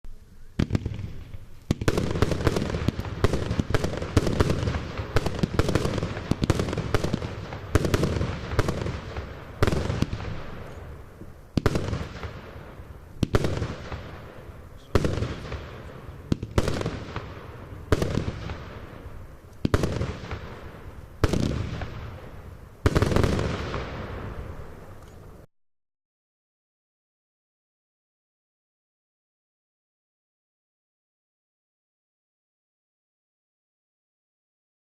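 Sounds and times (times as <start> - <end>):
crackling hiss: 0.1 - 25.5
firework sharp reports: 0.5 - 25.5
firework bangs: 0.6 - 25.5.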